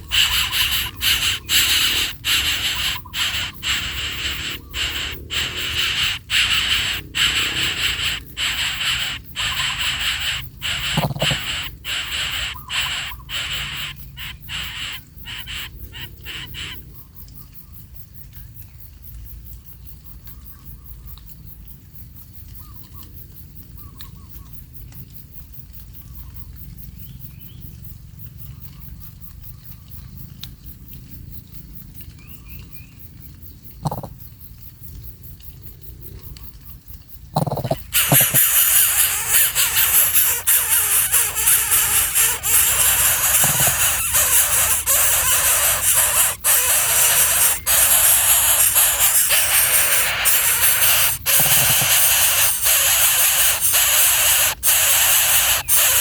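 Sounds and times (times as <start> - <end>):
faint high chirps: 0.0 - 16.8, 37.5 - 56.0
loud steady hiss: 0.0 - 16.8, 37.7 - 56.0.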